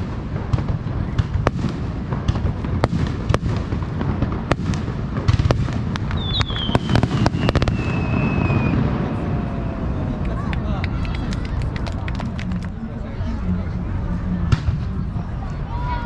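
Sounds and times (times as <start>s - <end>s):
fireworks bangs and crackles: 0.0s - 12.8s, 13.9s - 15.6s
falling firework whistle: 6.1s - 10.2s.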